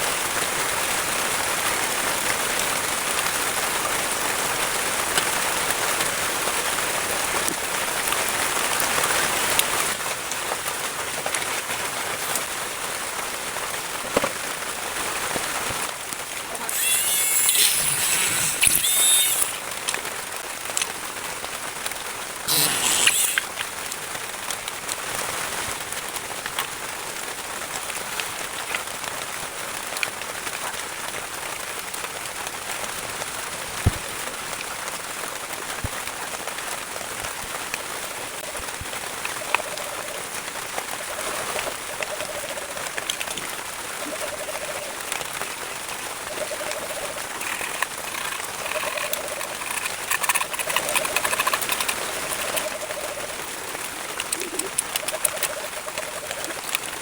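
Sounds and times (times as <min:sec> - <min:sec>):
crackling hiss: 0:16.7 - 0:19.9, 0:22.5 - 0:23.8
doves cooing: 0:43.8 - 0:57.0.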